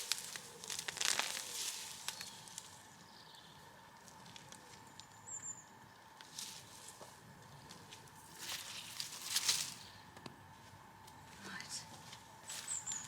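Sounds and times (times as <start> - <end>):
plants and soil rustling: 0.0 - 5.4, 6.1 - 10.0, 10.6 - 13.0.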